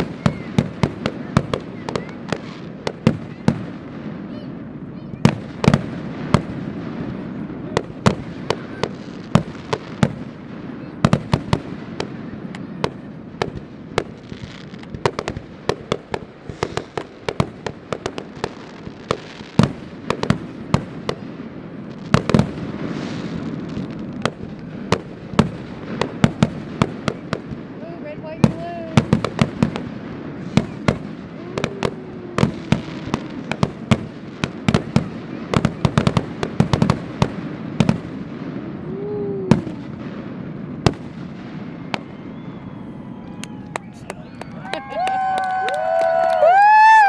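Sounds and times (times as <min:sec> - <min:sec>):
fireworks bangs and crackles: 0:00.0 - 0:47.0.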